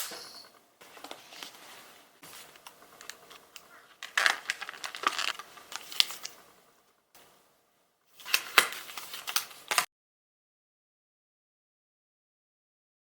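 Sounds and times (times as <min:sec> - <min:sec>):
rustling and crinkling: 0:00.8 - 0:06.4.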